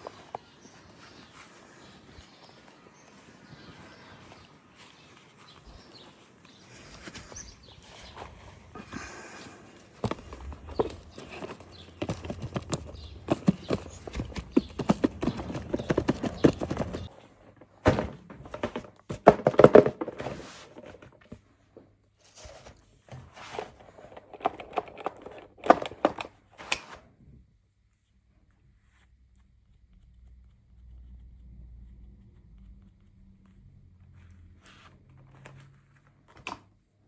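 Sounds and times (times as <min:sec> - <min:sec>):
toy packaging clicks and taps: 0:10.0 - 0:17.1, 0:24.1 - 0:26.4.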